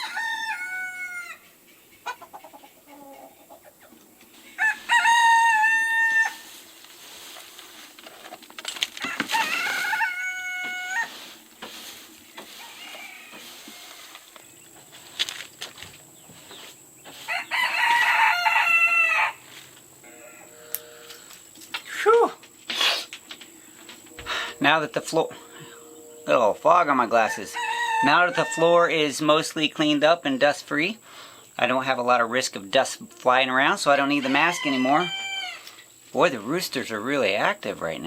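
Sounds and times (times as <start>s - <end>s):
roosters crowing: 0.0s - 7.4s, 8.9s - 14.8s, 16.5s - 21.7s, 23.4s - 29.3s, 33.7s - 36.0s.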